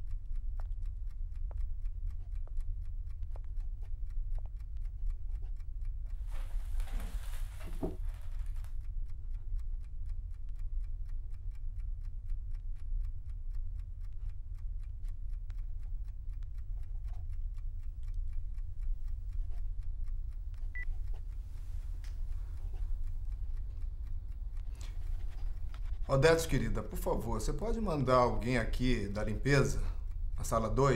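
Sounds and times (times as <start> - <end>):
fast clock-like ticking: 0.0 - 6.4, 8.1 - 30.9.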